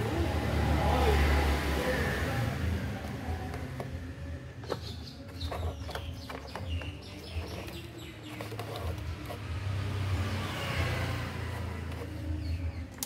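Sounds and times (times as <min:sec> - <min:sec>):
birds chirping: 0:03.5 - 0:13.0.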